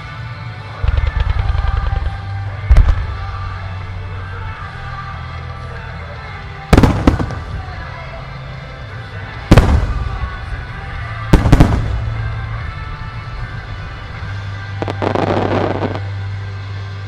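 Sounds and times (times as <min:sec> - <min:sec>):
music soundtrack: 0:00.0 - 0:17.0
fireworks bursting with bangs: 0:00.8 - 0:04.9, 0:06.7 - 0:08.0, 0:09.4 - 0:16.3.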